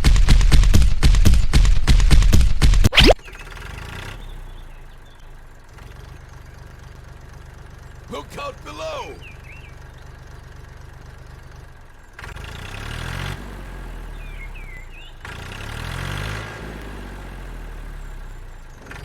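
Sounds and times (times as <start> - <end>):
small engine idling and revving: 3.2 - 8.1, 9.2 - 19.0.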